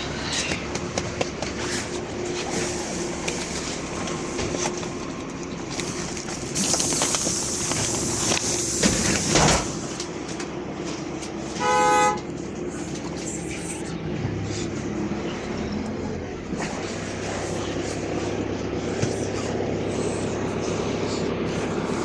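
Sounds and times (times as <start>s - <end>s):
bus engine humming: 0.0s - 22.0s
compressed air hiss: 6.6s - 9.7s.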